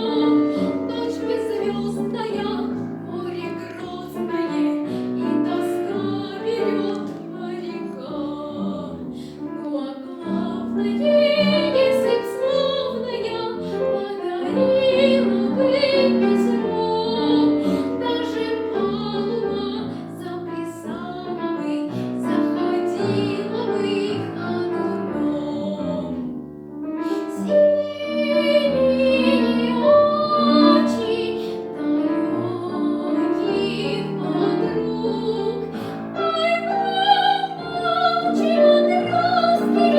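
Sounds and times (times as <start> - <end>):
piano accompaniment: 0.0 - 39.9
girl singing operatically: 27.3 - 39.9.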